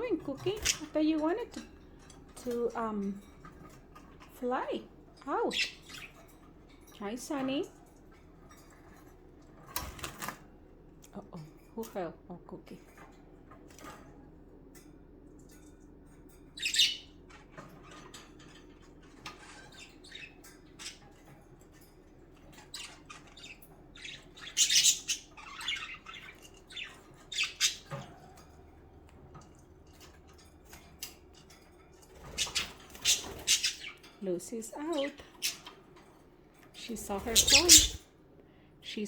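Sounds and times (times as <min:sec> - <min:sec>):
budgerigars chirping and squawking: 0:00.0 - 0:02.8, 0:03.4 - 0:07.8, 0:16.5 - 0:34.2, 0:34.8 - 0:36.1, 0:36.7 - 0:38.1.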